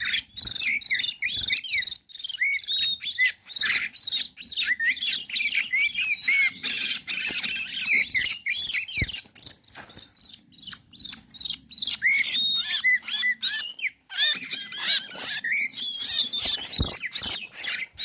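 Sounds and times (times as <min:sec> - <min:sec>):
bird song: 0:00.0 - 0:18.0.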